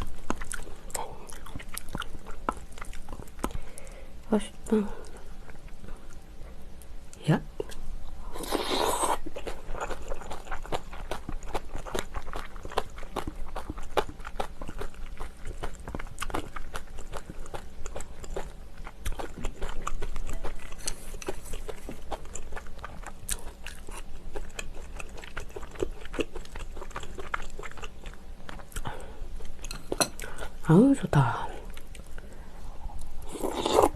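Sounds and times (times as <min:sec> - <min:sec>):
chewing and crunching food: 0:00.0 - 0:33.9.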